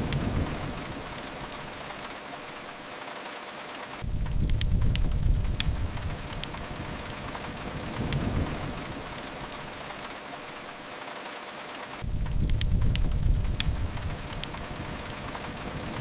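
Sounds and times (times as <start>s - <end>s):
fireplace crackling pops: 0.0s - 16.0s
rain hissing against a window: 0.0s - 16.0s
low rumble: 4.0s - 9.6s, 12.0s - 16.0s.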